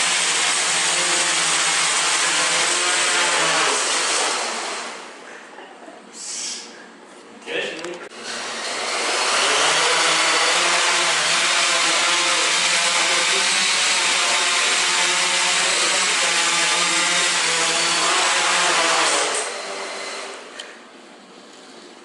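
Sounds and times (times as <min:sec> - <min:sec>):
quadcopter motors whirring: 0:08.2 - 0:20.4.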